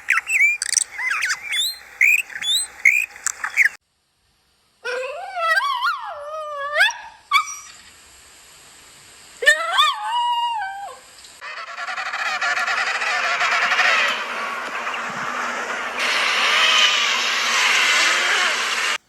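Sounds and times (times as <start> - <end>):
animal cries sliding up and down: 9.4 - 19.0
harsh rasping animal call: 11.4 - 19.0.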